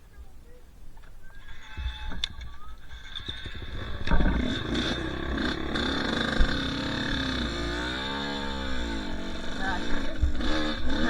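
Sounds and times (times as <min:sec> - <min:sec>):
dirt bike engine revving: 0:02.8 - 0:11.0.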